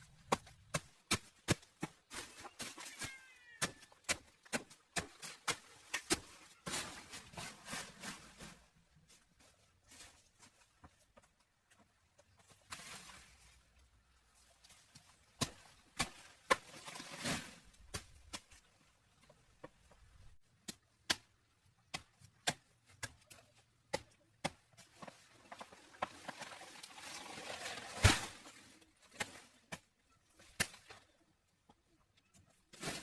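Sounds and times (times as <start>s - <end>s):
rustling or scraping: 5.0s - 11.1s, 12.3s - 18.8s, 24.8s - 29.8s.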